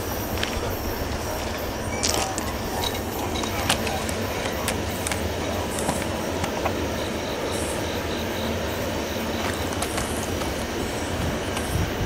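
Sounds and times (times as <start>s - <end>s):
diesel locomotives rumbling: 0.0s - 12.0s.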